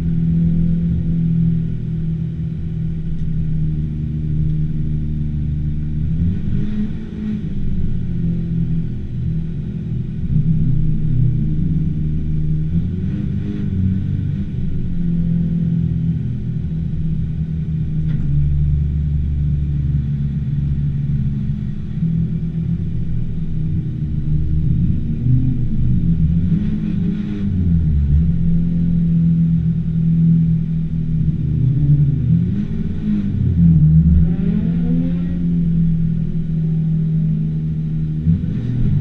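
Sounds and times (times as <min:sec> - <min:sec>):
car engine running: 0:00.0 - 0:39.0.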